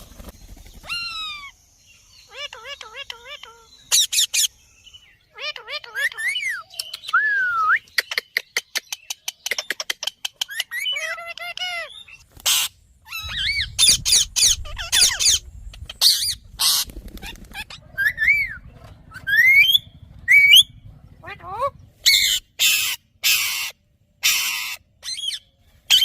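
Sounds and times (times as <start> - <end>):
parakeet warbling calls: 2.2 - 4.5, 5.3 - 6.6, 10.6 - 26.0
parakeet harsh screeches: 22.1 - 26.0.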